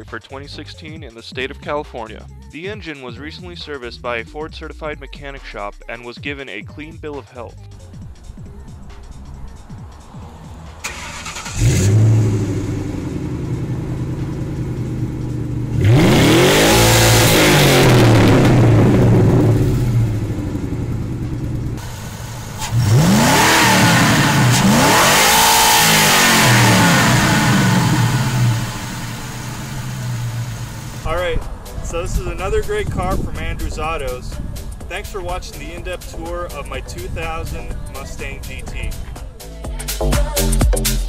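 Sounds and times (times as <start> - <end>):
car engine starting and revving: 7.8 - 38.2.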